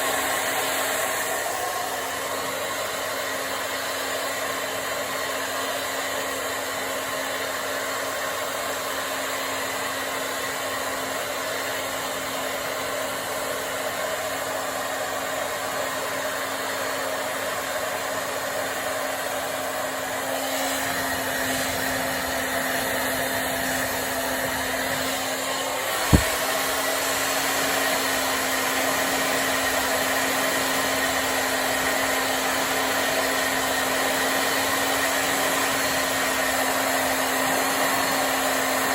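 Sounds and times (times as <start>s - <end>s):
hair dryer blowing: 0.0s - 38.9s
short thump: 26.0s - 26.4s.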